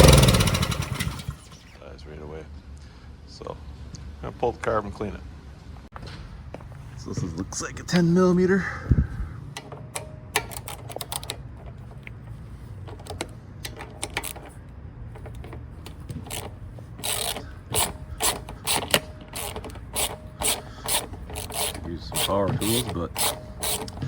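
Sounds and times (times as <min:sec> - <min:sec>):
ratchet wrench clicking: 0:13.0 - 0:14.6, 0:15.2 - 0:24.0.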